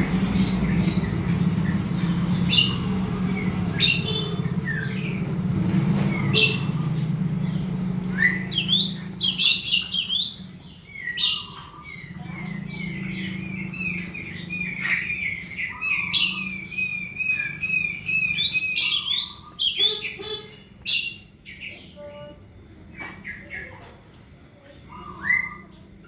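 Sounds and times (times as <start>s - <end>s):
sharp high bird chirps: 0.0s - 5.3s
rapid chattering bird notes: 0.0s - 21.4s.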